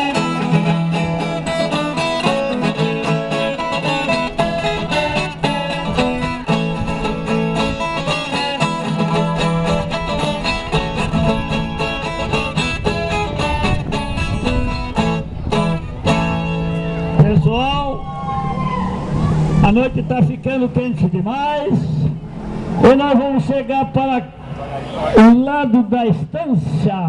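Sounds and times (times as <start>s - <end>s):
folk music on plucked strings: 0.0s - 17.6s.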